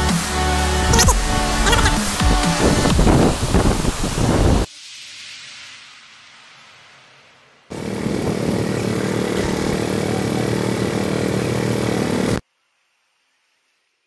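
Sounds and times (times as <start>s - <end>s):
faint hiss: 1.0s - 7.7s, 12.4s - 14.0s
engine running steadily: 7.7s - 12.4s.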